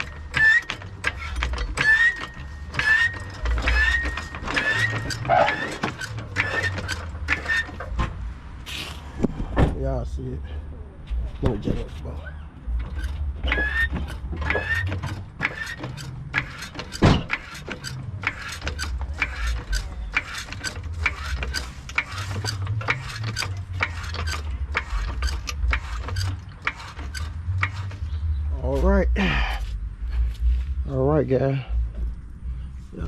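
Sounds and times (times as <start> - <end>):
car jack squeaks: 0.0 - 8.8, 11.5 - 29.0
car jack clicking and creaking: 0.0 - 9.7, 11.4 - 30.2.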